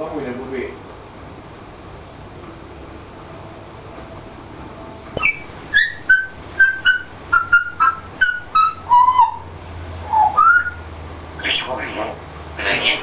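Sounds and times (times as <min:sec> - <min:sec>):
parrot whistling: 0:05.2 - 0:12.0.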